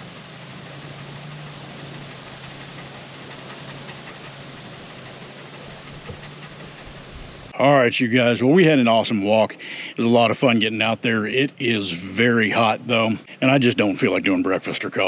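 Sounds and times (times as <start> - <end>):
low hum: 0.0 - 14.2
even hiss: 0.0 - 15.0.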